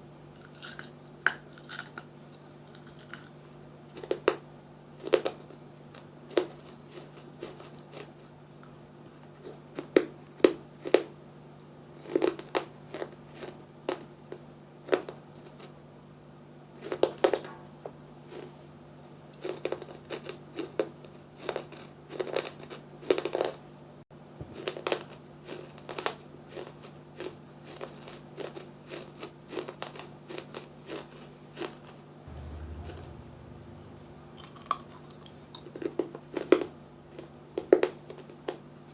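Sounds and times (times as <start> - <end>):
clay crunching under teeth: 0.4 - 4.4
faint steady hum: 32.3 - 38.9.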